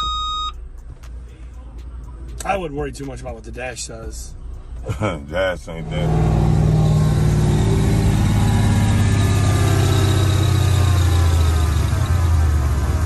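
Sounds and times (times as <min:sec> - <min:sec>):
truck engine running: 0:05.7 - 0:13.0.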